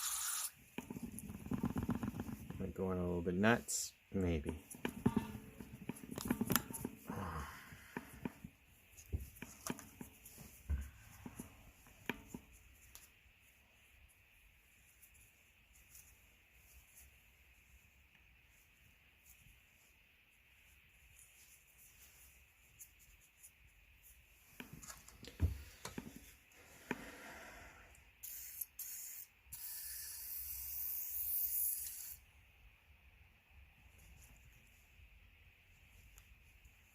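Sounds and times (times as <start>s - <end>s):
aerosol spray can hissing: 0.0s - 0.6s, 28.2s - 32.2s.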